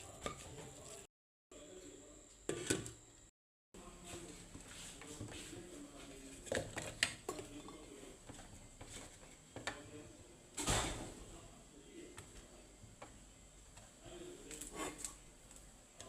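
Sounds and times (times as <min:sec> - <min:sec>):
kitchenware scraping: 0:00.0 - 0:01.1, 0:14.5 - 0:15.2.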